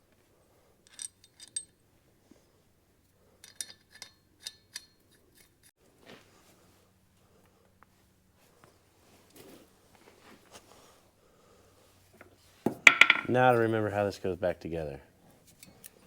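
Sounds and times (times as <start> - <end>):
metal parts and tools clinking: 0.8 - 1.8, 3.4 - 5.6, 12.8 - 13.6.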